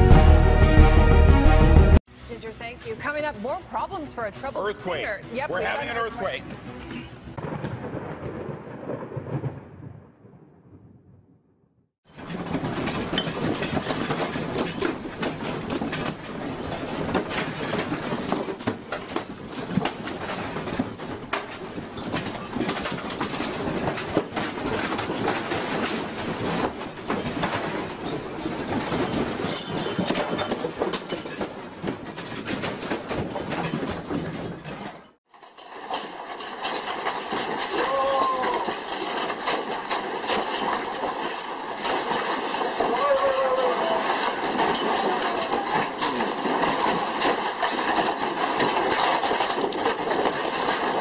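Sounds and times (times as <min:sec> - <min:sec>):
earthquake rumble: 0:07.4 - 0:51.0
furniture rattling and clattering: 0:12.0 - 0:51.0.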